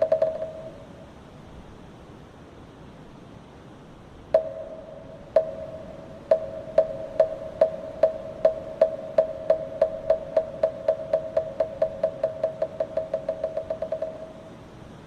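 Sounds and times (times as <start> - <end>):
hollow wooden knocks: 0.0 - 0.8, 4.4 - 14.4.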